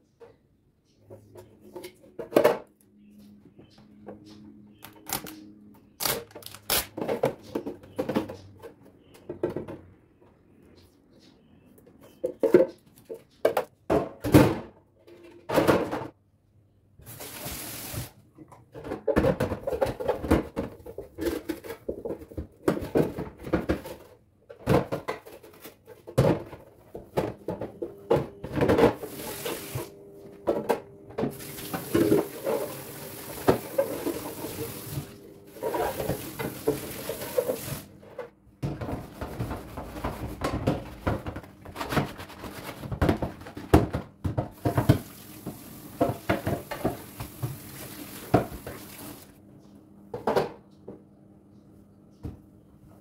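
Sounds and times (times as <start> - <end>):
kitchen items clattering: 1.0 - 2.8, 6.9 - 10.1, 12.0 - 16.2, 17.1 - 49.3
kitchen items knocking and clicking: 1.0 - 2.8, 6.9 - 10.1, 12.1 - 16.2, 18.4 - 49.0, 50.1 - 51.0.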